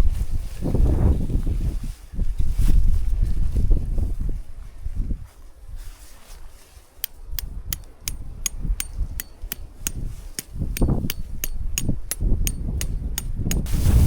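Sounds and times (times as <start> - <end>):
sharp knocks: 7.7 - 13.7.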